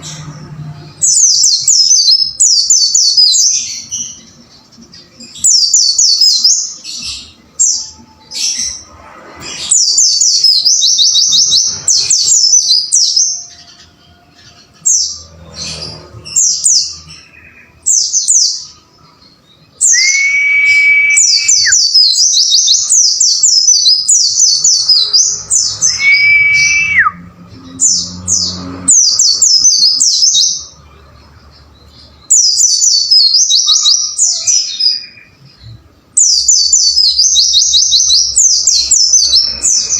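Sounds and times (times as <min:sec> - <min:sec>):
bird high-pitched chirps: 0:36.2 - 0:39.9.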